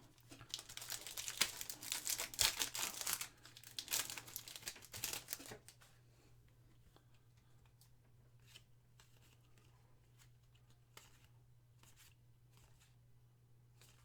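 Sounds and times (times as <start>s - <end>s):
foil wrapper tearing and crinkling: 0.2s - 5.7s.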